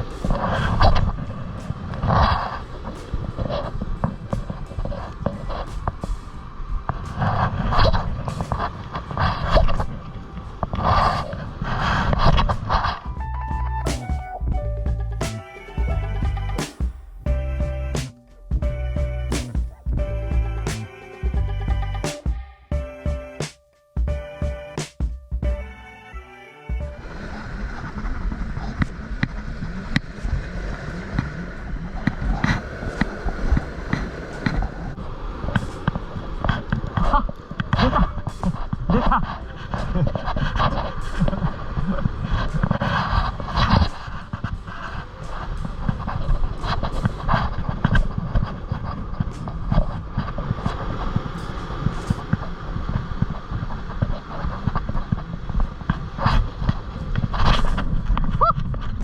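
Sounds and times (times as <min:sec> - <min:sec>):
sea surf: 0:00.0 - 0:13.1, 0:25.6 - 0:59.0
wind buffeting microphone: 0:00.0 - 0:20.7, 0:27.0 - 0:59.0.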